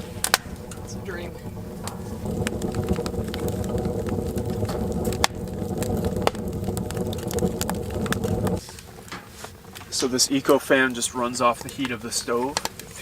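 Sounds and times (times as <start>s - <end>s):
burning wood crackling and popping: 0.0s - 13.0s
stove draft rumbling: 0.0s - 13.0s.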